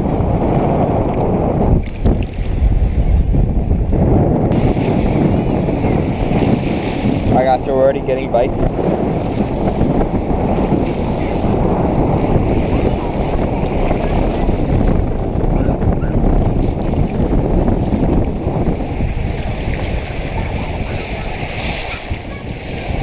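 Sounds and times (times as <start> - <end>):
storm wind on microphone: 0.0 - 23.0.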